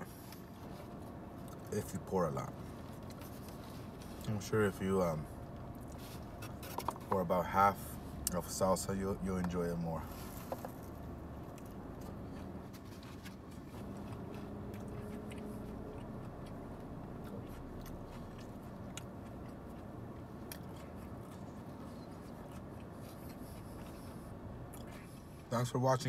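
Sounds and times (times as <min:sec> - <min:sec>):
person chewing food: 0:05.4 - 0:07.2, 0:10.1 - 0:25.5.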